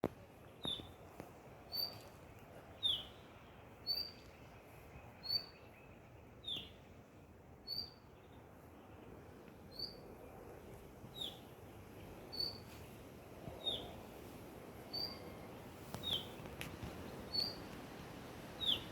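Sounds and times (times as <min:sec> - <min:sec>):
songbird calling: 0:00.5 - 0:01.0, 0:01.7 - 0:07.0, 0:07.6 - 0:09.1, 0:09.7 - 0:10.1, 0:11.1 - 0:13.0, 0:13.6 - 0:14.1, 0:14.8 - 0:17.8, 0:18.5 - 0:18.9.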